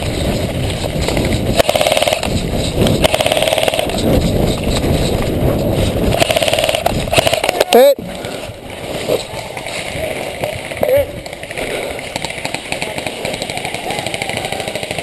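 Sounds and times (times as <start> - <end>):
airsoft rifle full-auto bursts: 1.6 - 2.3, 3.0 - 3.9, 6.1 - 7.5.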